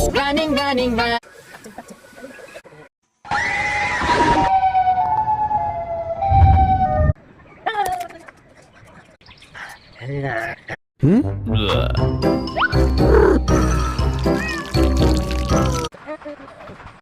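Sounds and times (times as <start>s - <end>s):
two-tone siren wail: 3.3s - 7.2s.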